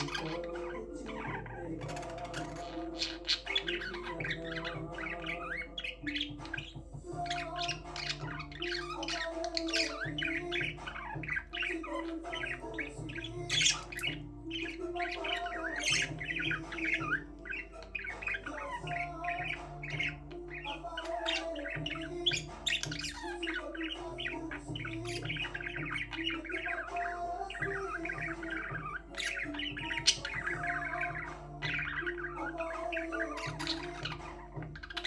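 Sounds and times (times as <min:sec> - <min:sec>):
budgerigars chirping: 0:00.0 - 0:35.0
quiet background music: 0:00.0 - 0:35.0.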